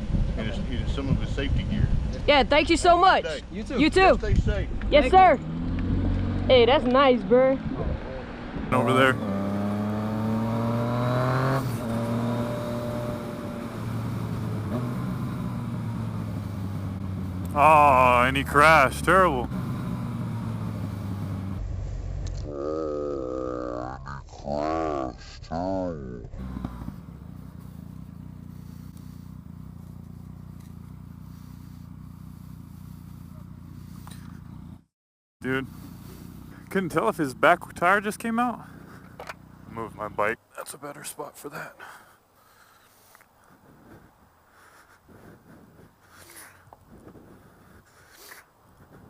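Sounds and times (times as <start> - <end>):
motorcycle engine pulling away: 4.6 - 23.7, 26.3 - 40.3.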